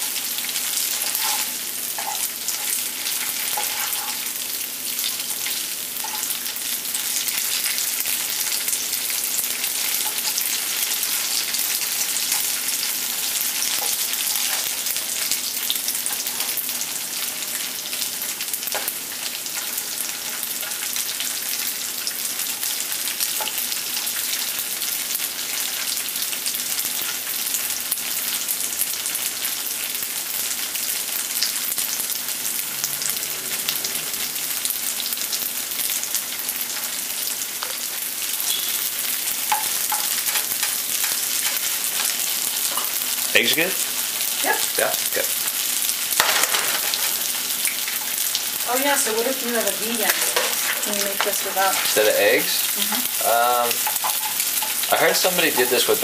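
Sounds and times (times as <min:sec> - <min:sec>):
tofu sizzling in hot oil: 0:00.0 - 0:56.0
spatula scraping a pan: 0:00.8 - 0:04.4, 0:46.2 - 0:48.3, 0:50.0 - 0:52.0, 0:53.8 - 0:55.8.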